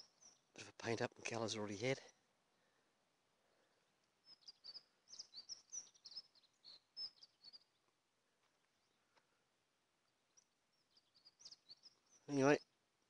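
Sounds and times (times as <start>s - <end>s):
faint bird twittering: 0.0s - 0.7s, 3.5s - 7.9s, 10.0s - 12.8s.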